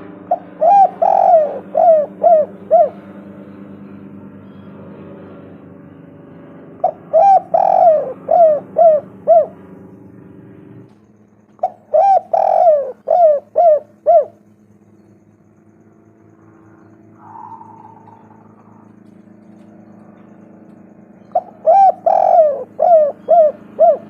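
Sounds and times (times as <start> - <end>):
dove cooing: 0.0 - 3.4, 6.8 - 9.8, 11.5 - 14.5, 16.5 - 24.0.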